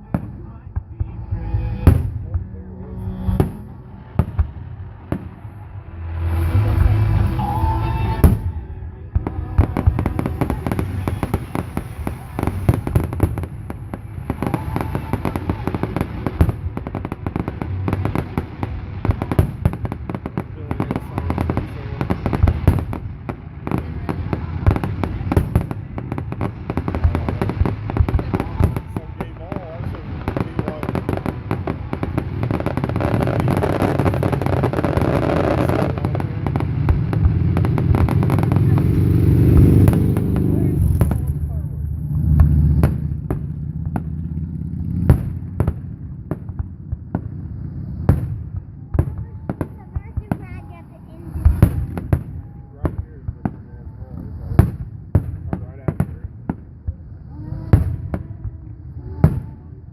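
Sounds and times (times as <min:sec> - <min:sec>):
fireworks bangs and crackles: 0:00.0 - 0:59.9
heavy firework booms: 0:00.0 - 0:59.9
low rumble: 0:00.0 - 0:59.9.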